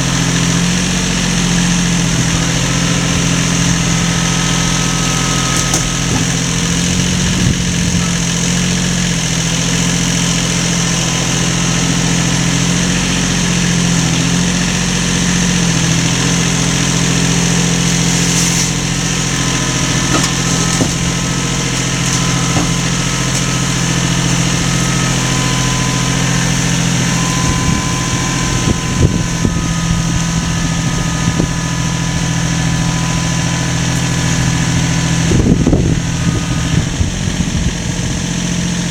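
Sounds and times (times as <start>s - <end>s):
motor humming: 0.0s - 38.9s.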